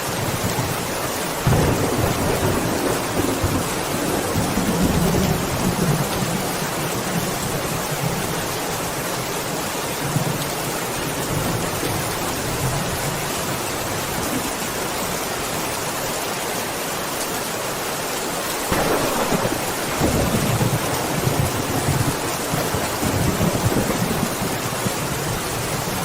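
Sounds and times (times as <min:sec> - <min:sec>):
steady rain: 0:00.0 - 0:26.0
rumble of thunder: 0:01.4 - 0:06.5, 0:18.7 - 0:26.0.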